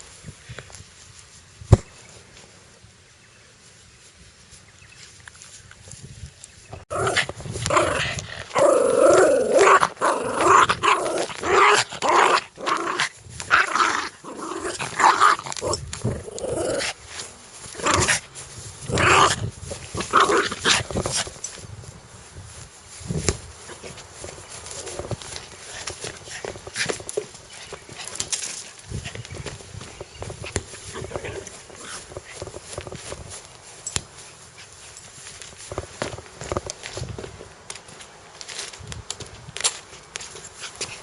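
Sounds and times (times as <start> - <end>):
dog growling aggressively: 6.9 - 17.0, 17.7 - 18.2, 18.8 - 21.2.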